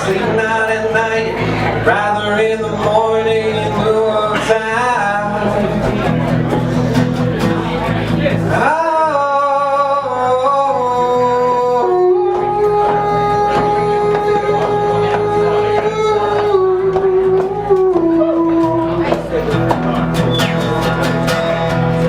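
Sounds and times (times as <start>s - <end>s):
person singing long held notes: 8.5s - 19.2s.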